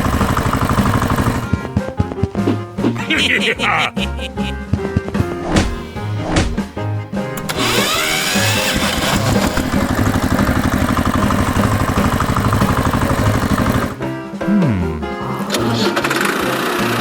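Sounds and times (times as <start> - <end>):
engine starting and running: 0.0 - 1.5, 7.3 - 14.0
background music: 0.0 - 17.0.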